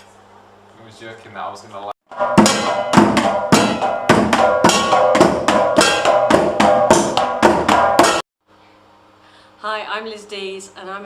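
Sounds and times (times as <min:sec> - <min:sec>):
struck percussion notes ringing: 0:02.1 - 0:08.2.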